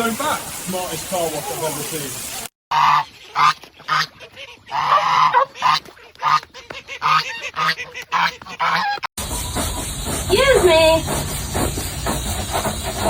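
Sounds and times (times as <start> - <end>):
loud honking bird calls: 2.7 - 9.1.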